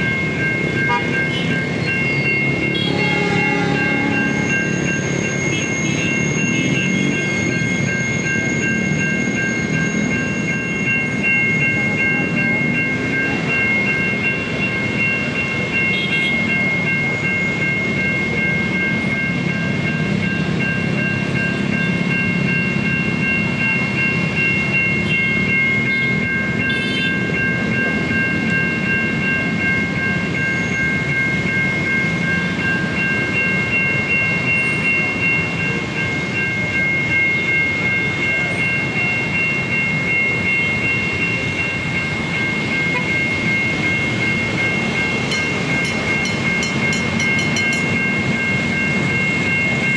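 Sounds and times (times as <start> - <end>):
level crossing warning siren: 0.0 - 49.9
train rumbling past: 0.0 - 49.9.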